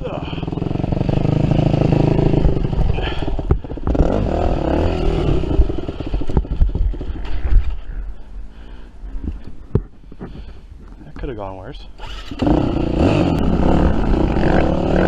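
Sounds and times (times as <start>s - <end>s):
dirt bike engine revving: 0.0s - 7.5s, 12.0s - 15.0s.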